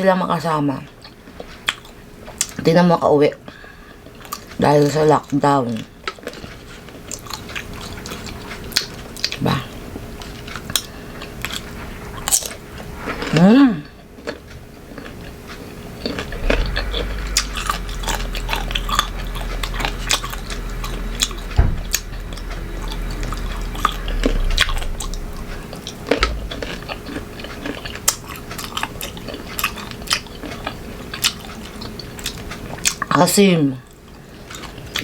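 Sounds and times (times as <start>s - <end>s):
crunchy mango chewing: 6.0s - 33.1s.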